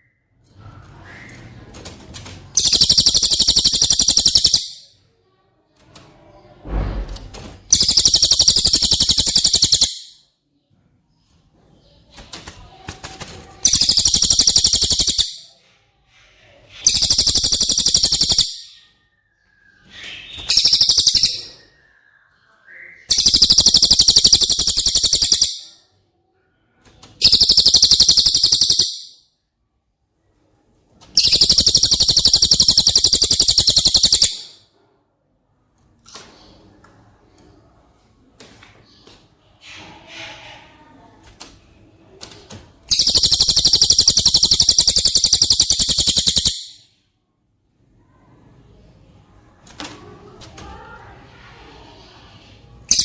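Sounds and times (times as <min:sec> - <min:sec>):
bird high-pitched trills: 0:02.6 - 0:05.0, 0:07.7 - 0:10.2, 0:13.6 - 0:15.5, 0:16.8 - 0:19.0, 0:19.8 - 0:21.8, 0:23.0 - 0:25.8, 0:27.2 - 0:29.2, 0:31.2 - 0:34.6, 0:42.9 - 0:46.9.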